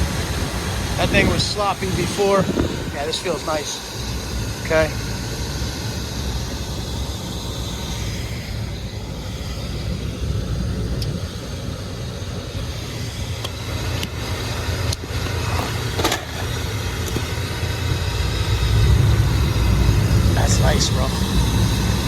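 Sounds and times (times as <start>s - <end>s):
hvac unit humming: 0.0s - 22.0s.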